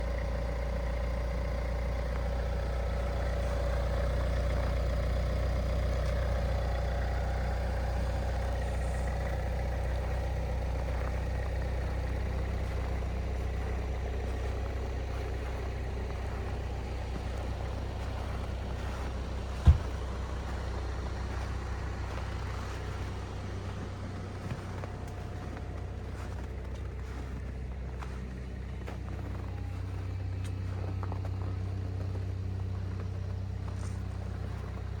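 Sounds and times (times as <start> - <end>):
car engine rumbling: 0.0 - 35.0.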